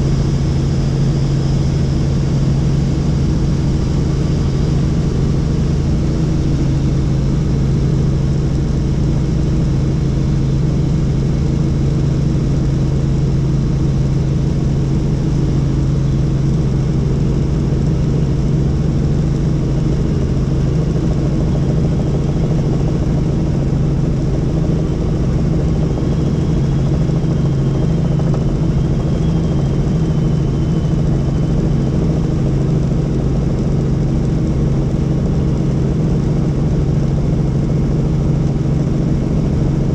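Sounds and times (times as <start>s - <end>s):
helicopter engine and rotor drone: 0.0s - 39.9s
faint high whine: 24.3s - 32.9s.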